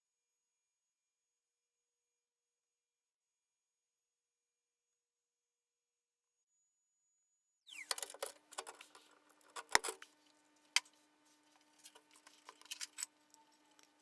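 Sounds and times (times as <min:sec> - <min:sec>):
faint steady hum: 0:07.8 - 0:14.0.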